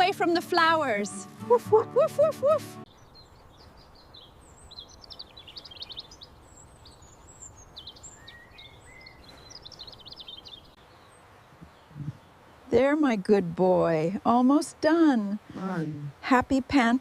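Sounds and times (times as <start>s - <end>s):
outdoor background noise: 0.0s - 17.0s
small birds chirping and trilling: 2.9s - 13.0s.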